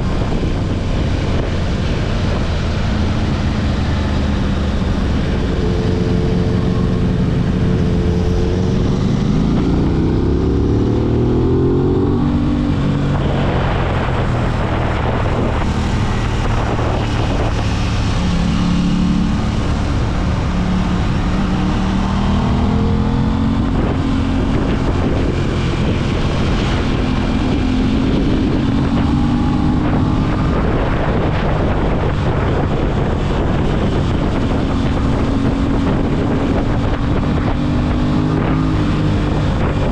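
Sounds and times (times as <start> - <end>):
motorcycle engine accelerating: 0.0 - 39.9
wind over microphone: 0.0 - 39.9.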